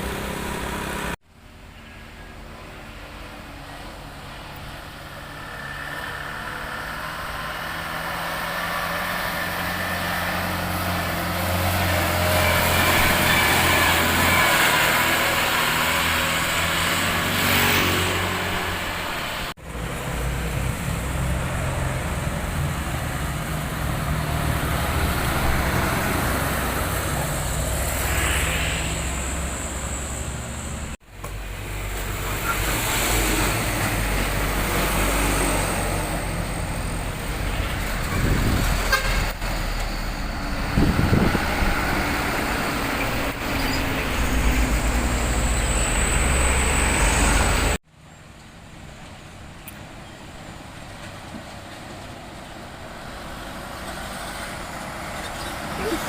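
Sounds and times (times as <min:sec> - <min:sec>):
truck diesel engines running: 0:00.0 - 0:56.0
vehicles passing: 0:00.0 - 0:56.0
horns tooting: 0:37.4 - 0:39.7.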